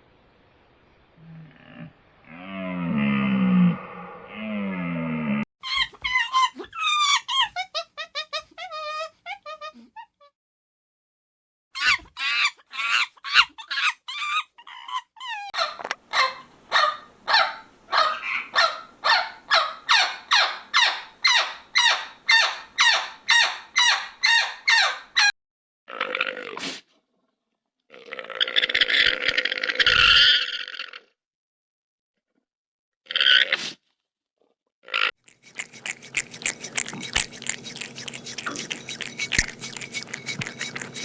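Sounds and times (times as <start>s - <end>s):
animal calling: 15.6s - 25.3s, 35.3s - 41.0s.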